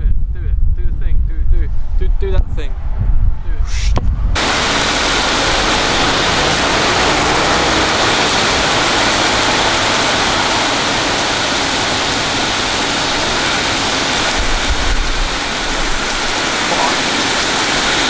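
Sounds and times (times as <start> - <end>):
heavy rain pouring: 4.4 - 18.0.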